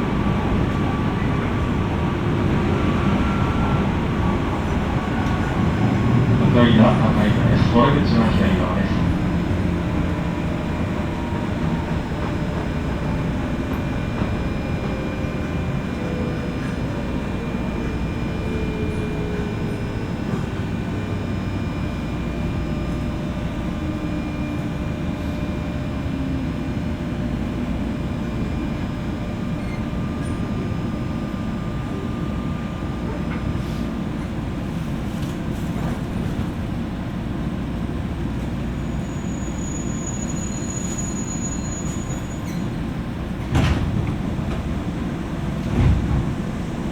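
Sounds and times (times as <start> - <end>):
train wheels rumbling: 0.0 - 46.9.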